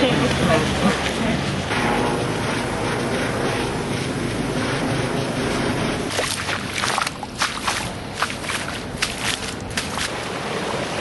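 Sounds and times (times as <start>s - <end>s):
rushing floodwater: 6.1s - 11.0s.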